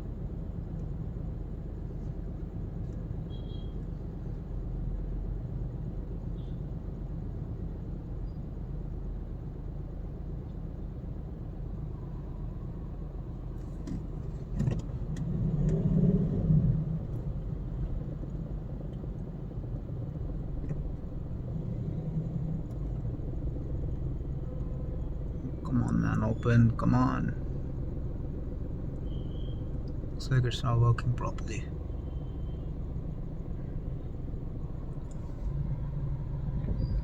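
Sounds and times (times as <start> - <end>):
car engine rumble and road noise: 0.0 - 37.0.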